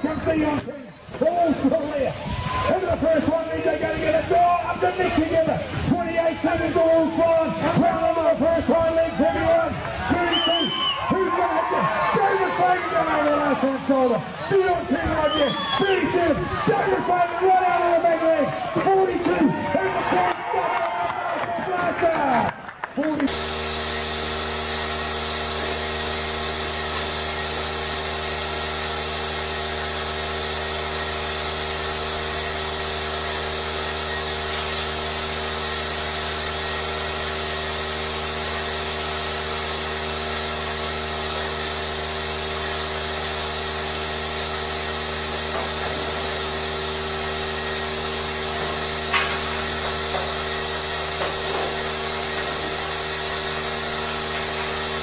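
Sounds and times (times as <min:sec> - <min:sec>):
mechanical drone with hiss: 0:00.0 - 0:20.2, 0:23.3 - 0:55.0
short hiss: 0:34.4 - 0:35.0.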